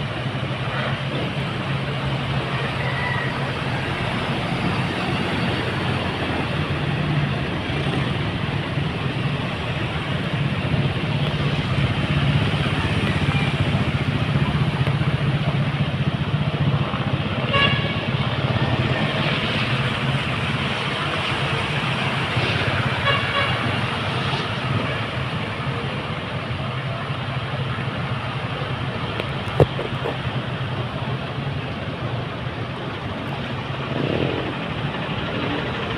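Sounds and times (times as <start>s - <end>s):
road noise: 0.0s - 35.9s
car horn toot: 17.5s - 18.0s.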